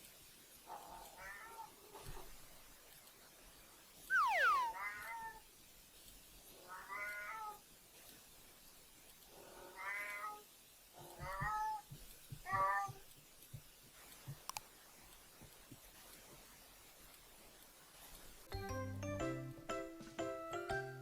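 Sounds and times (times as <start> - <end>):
cat meowing: 4.1 - 5.4, 6.7 - 7.6, 9.7 - 10.4, 11.1 - 11.9, 12.5 - 13.0.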